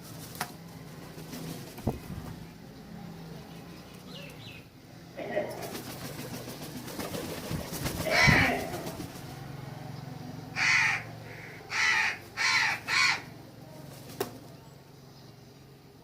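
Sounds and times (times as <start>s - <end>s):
crow cawing: 8.0s - 9.0s, 10.5s - 13.4s.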